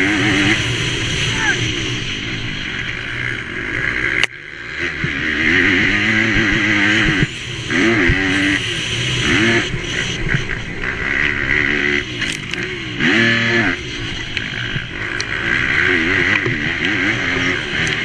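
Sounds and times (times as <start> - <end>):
motorbike engine revving: 0.0 - 18.0
steady hiss: 6.6 - 10.8.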